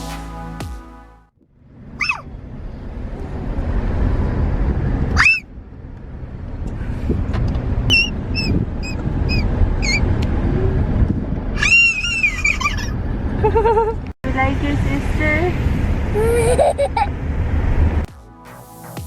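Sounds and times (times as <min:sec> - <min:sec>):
road rumble inside moving car: 0:01.4 - 0:18.1
child squealing: 0:02.0 - 0:02.3, 0:05.2 - 0:05.4, 0:07.9 - 0:10.0, 0:11.6 - 0:13.0.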